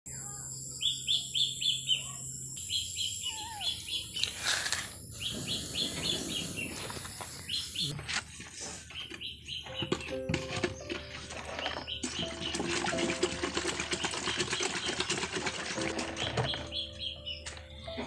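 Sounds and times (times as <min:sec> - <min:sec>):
bird chirping: 0:00.2 - 0:08.0, 0:08.8 - 0:13.2, 0:15.8 - 0:18.0.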